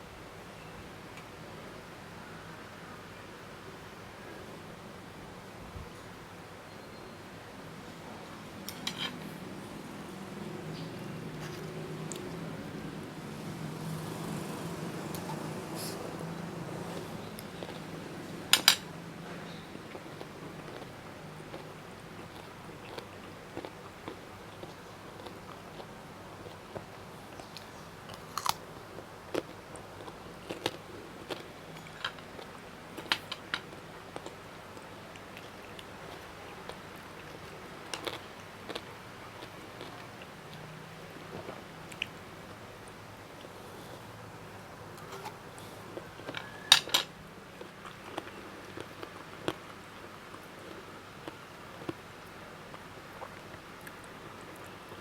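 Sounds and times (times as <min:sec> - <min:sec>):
chewing crunchy food: 0:10.2 - 0:18.8, 0:19.4 - 0:44.2, 0:44.8 - 0:55.0.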